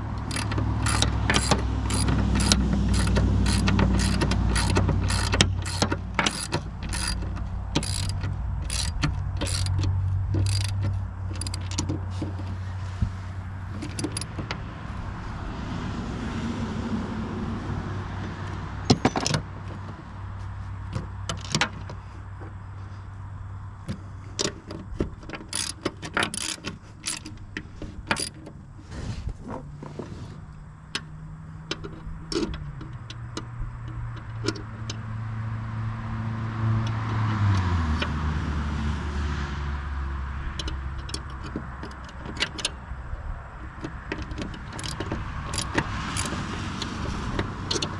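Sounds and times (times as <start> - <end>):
low engine hum: 0.0 - 47.9
metallic clinks of wrenches: 0.2 - 12.5, 13.8 - 14.4, 24.3 - 28.5, 44.5 - 46.5.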